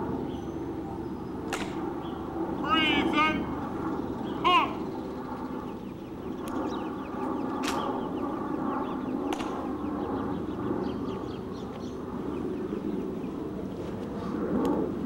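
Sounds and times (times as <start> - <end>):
birds chirping faintly: 0.0 - 14.1
low steady background hum: 0.0 - 15.0
sharp clicks or snaps: 1.5 - 1.8, 9.3 - 9.6.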